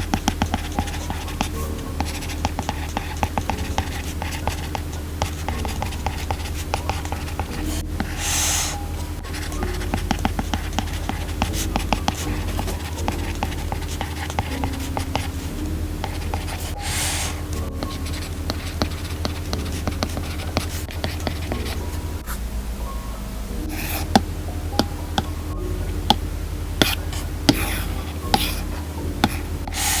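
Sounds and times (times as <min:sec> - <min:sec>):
stylus tapping on glass screen: 0:24.0 - 0:25.4.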